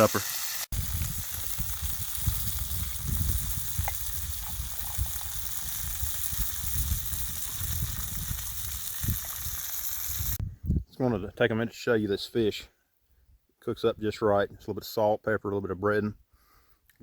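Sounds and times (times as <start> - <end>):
fish sizzling in a skillet: 0.0 - 10.4.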